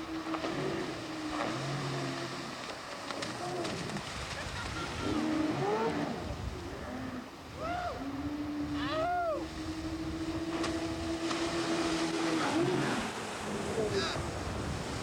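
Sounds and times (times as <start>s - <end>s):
water noise: 0.0s - 15.0s
wind buffeting microphone: 3.8s - 15.0s.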